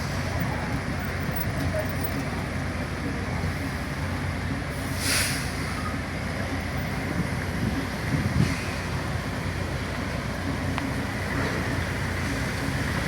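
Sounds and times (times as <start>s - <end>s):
low rumble of heavy engines: 0.0s - 13.0s
short hiss: 4.8s - 5.9s.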